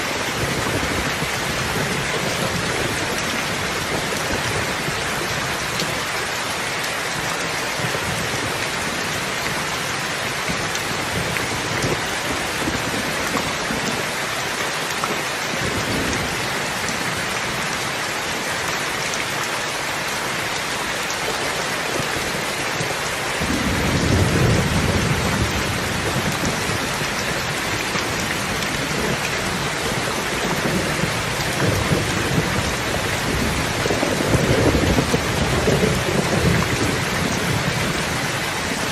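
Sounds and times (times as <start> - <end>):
rain falling: 0.0 - 38.9
thunder rumbling: 23.4 - 38.9.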